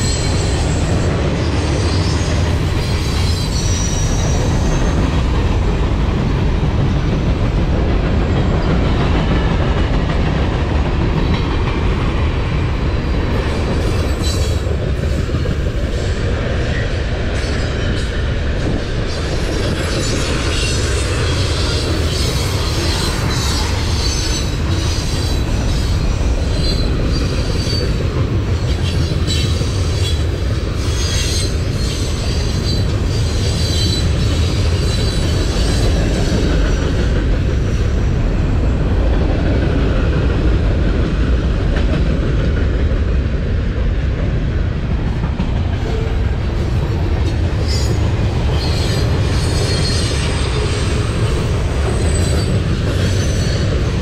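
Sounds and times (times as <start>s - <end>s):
train wheels rumbling on rail: 0.0s - 54.0s
wheel squeal: 1.6s - 5.0s, 30.8s - 36.2s, 47.6s - 51.0s.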